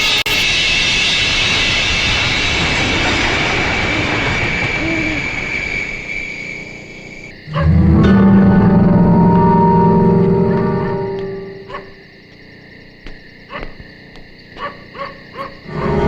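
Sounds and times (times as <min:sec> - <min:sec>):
train running: 0:00.0 - 0:12.0, 0:15.6 - 0:16.0
train horn: 0:07.5 - 0:12.0, 0:15.7 - 0:16.0.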